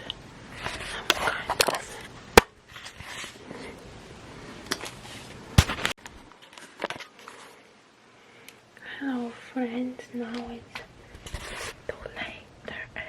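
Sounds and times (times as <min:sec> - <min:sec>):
sharp clicks and knocks: 0:05.6 - 0:06.0.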